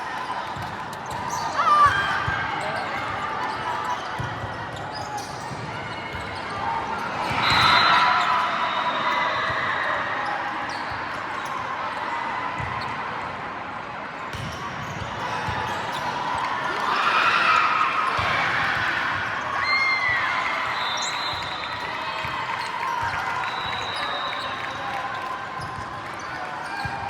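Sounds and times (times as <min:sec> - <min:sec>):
crowd cheering: 0:05.6 - 0:10.8, 0:15.1 - 0:27.0.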